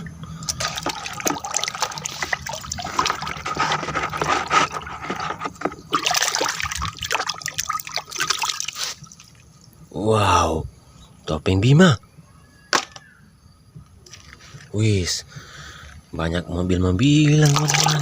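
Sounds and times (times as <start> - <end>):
water splashing and dribbling: 0.0 - 9.5, 17.0 - 18.0.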